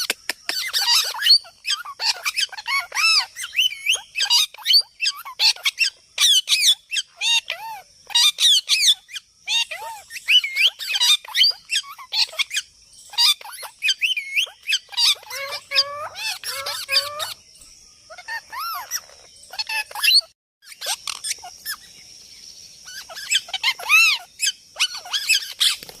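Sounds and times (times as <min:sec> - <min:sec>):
parrot squawking and whistling: 0:00.5 - 0:17.4, 0:18.1 - 0:21.5, 0:22.9 - 0:25.8
low parrot chatter: 0:14.9 - 0:17.4.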